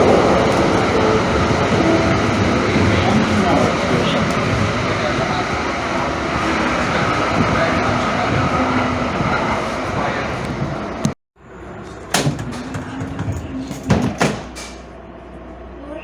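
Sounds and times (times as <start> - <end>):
light-rail train rumbling: 0.0 - 16.0
sharp knocks: 12.1 - 14.8.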